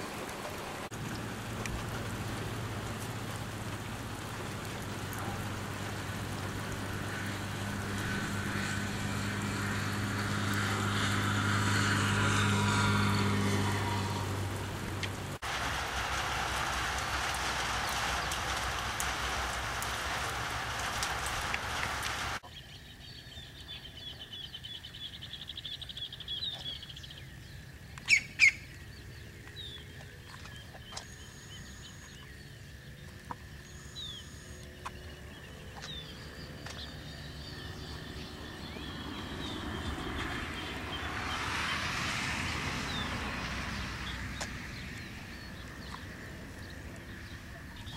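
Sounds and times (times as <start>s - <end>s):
songbirds chirping and trilling: 22.4s - 47.9s.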